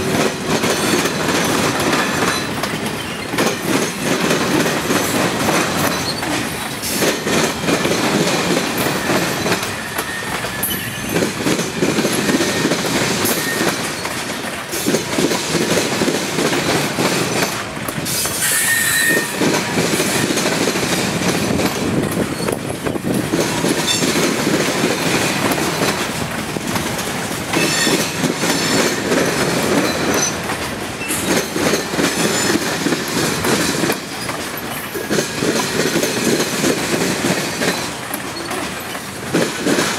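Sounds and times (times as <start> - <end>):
train wheels clacking over rail joints: 0.0 - 39.9
high wheel squeal: 5.8 - 6.7, 8.8 - 11.2, 12.5 - 14.2, 18.1 - 19.4, 27.6 - 29.0, 31.0 - 31.4.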